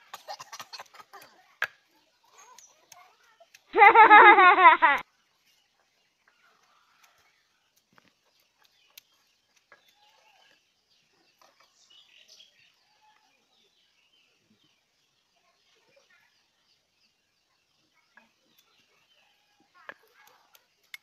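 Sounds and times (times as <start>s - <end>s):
faint bird chirps: 5.1s - 21.0s
faint clicks: 19.8s - 21.0s.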